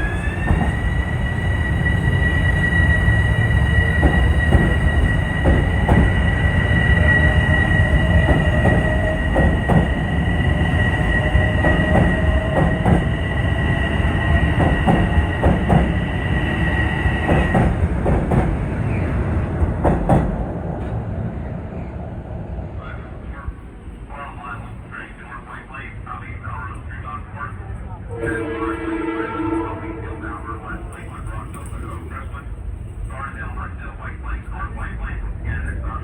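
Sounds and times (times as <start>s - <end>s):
train rumble: 0.0s - 36.0s
train wheels clicking over rail joints: 3.7s - 18.7s, 19.6s - 21.0s.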